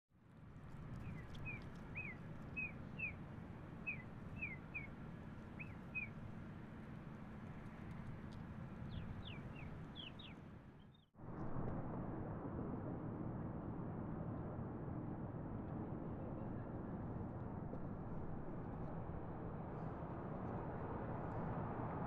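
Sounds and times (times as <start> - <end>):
small birds chirping: 0.7 - 11.1
steady low rumble: 11.2 - 22.0.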